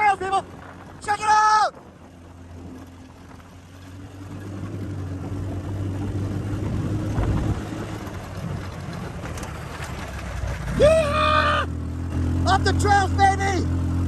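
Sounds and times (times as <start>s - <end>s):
go-kart engine accelerating: 0.0s - 14.0s.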